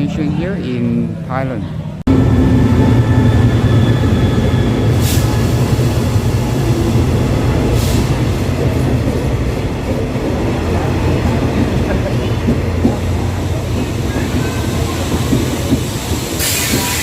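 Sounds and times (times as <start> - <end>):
train low rumble: 0.9 - 17.0
air hissing: 13.2 - 17.0.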